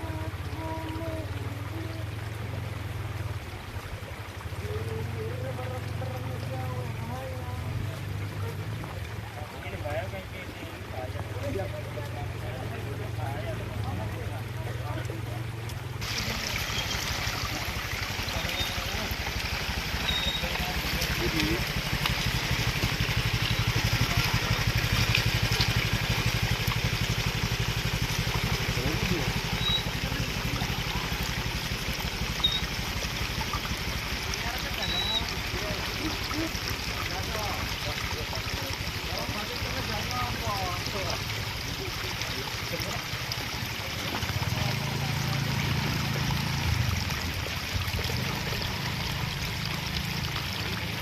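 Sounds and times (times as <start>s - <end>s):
river water flowing: 0.0s - 51.0s
motorcycle engine idling: 15.4s - 40.4s.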